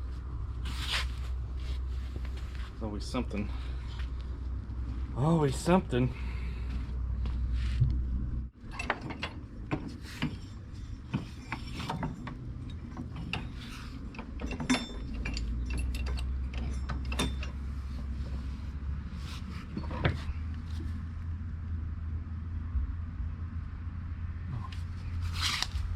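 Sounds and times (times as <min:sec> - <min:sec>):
steady low hum: 0:00.0 - 0:25.9
metallic clicks and knocks of tools: 0:11.1 - 0:17.7.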